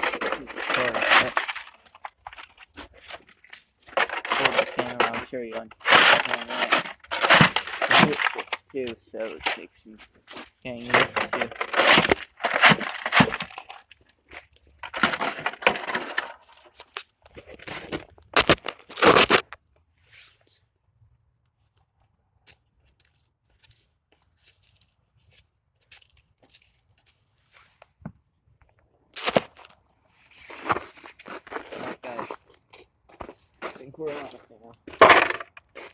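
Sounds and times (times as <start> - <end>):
tool scraping ice: 0.0 - 17.0, 17.6 - 19.4, 29.2 - 35.9
ice and snow crunching: 0.0 - 19.4, 29.2 - 35.9.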